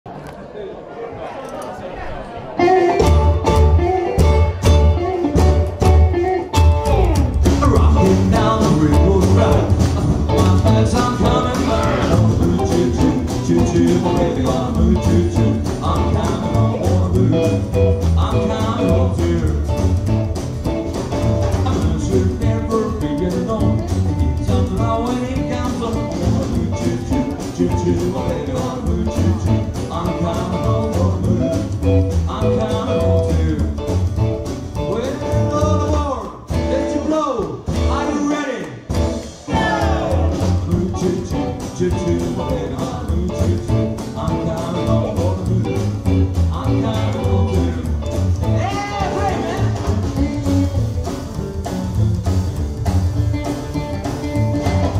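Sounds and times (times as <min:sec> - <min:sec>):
person singing: 0:02.5 - 0:20.2, 0:21.5 - 0:34.0, 0:39.5 - 0:50.9
live blues rock band: 0:02.6 - 0:54.9.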